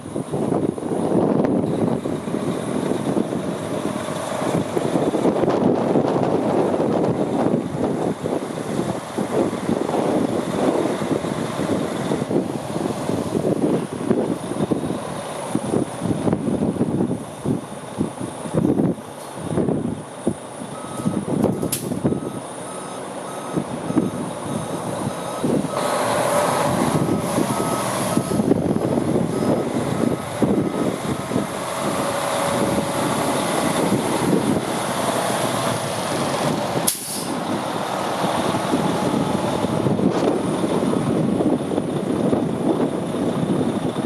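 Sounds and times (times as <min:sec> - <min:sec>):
truck diesel engine running: 0:00.0 - 0:44.0
back-up alarm beeping: 0:20.7 - 0:28.6, 0:29.2 - 0:32.1
air brake click and hiss: 0:21.6 - 0:22.1, 0:36.8 - 0:37.4.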